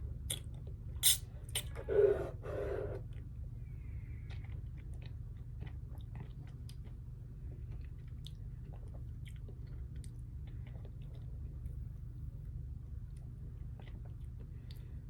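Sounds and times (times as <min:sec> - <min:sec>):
person chewing food: 0:04.1 - 0:11.6, 0:13.6 - 0:15.0.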